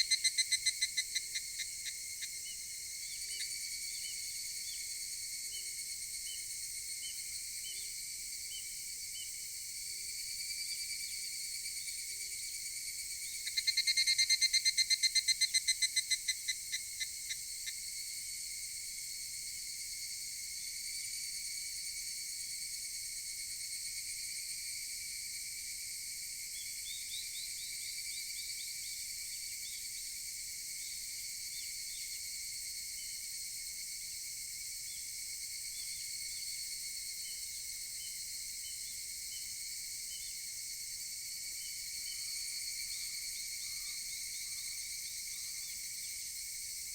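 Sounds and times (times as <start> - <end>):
cicadas calling: 0.0 - 7.1, 13.2 - 18.0.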